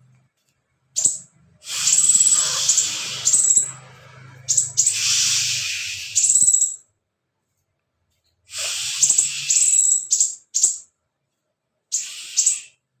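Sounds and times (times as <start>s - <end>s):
bird rasping calls: 1.0s - 3.8s.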